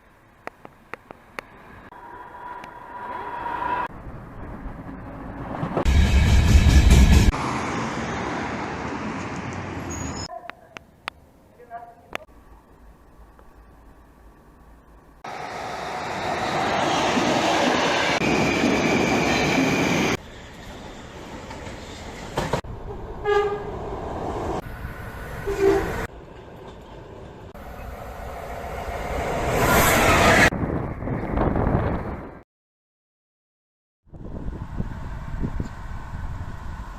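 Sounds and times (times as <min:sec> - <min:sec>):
train passing at speed: 0:01.6 - 0:10.3, 0:15.2 - 0:30.5, 0:34.4 - 0:36.9
train horn blasts: 0:23.2 - 0:23.8, 0:25.4 - 0:26.1.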